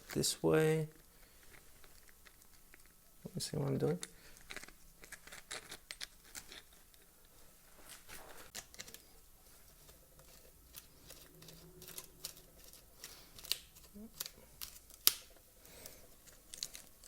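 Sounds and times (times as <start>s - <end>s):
small plastic parts clicking: 9.7s - 17.0s.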